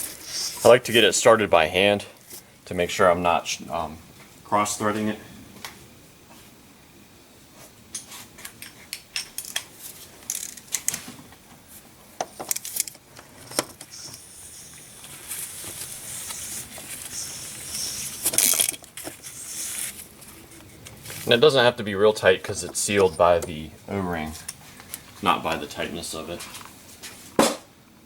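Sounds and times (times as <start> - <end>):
scraping rasping cap: 12.7 - 21.5.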